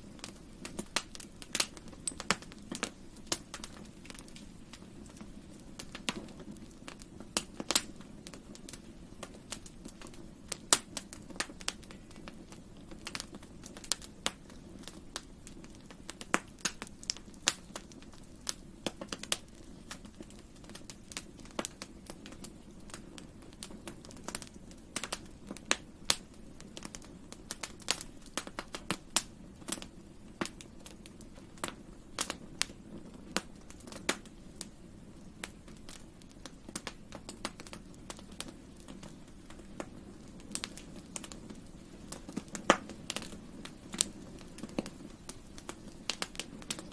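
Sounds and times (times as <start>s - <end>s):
campfire crackling and popping: 0.0s - 46.9s
low rumble of flames: 0.0s - 46.9s.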